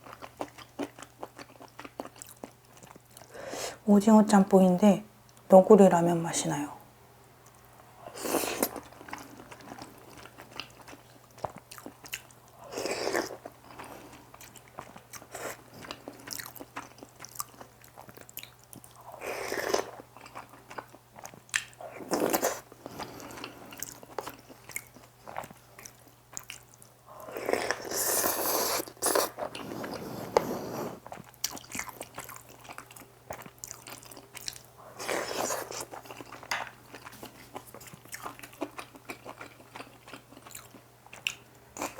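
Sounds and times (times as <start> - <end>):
slurping noodles: 27.4 - 31.1.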